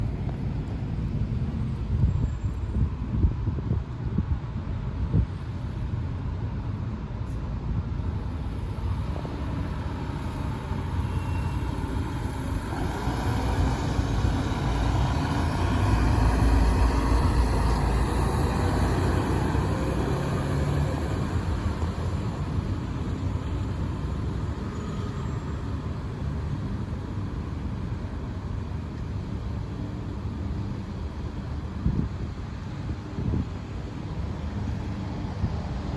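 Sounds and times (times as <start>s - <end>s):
fire engine diesel rumble: 5.5s - 24.6s.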